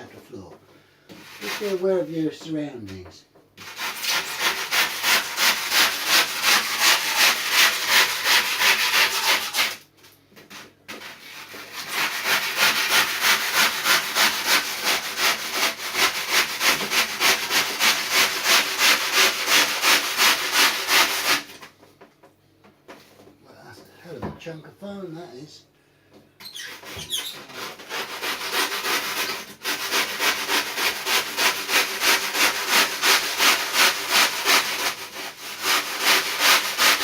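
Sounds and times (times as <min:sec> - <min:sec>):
hand saw cutting foam: 0:01.2 - 0:02.0, 0:03.6 - 0:09.8, 0:10.6 - 0:21.7, 0:26.6 - 0:37.0.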